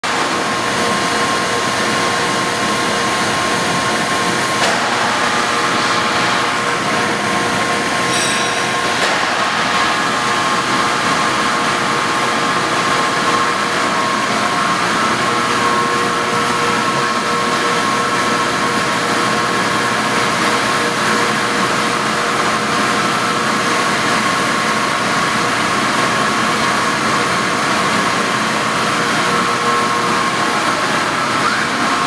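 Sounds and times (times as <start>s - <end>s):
machine tool humming and whining: 0.0s - 32.0s
short high-pitched ring: 8.1s - 9.2s.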